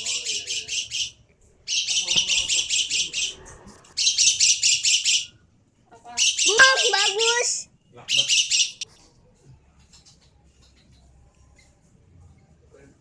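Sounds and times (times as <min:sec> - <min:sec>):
lovebird chattering: 0:00.0 - 0:05.4, 0:06.1 - 0:08.8.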